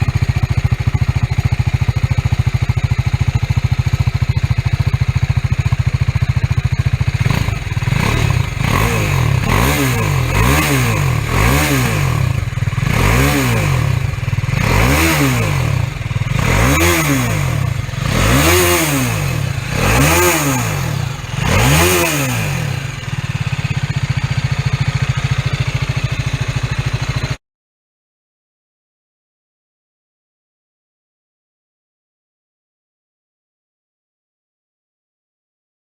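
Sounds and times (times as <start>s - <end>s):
motorcycle engine idling: 0.0s - 27.4s
motorcycle engine revving: 0.0s - 27.4s.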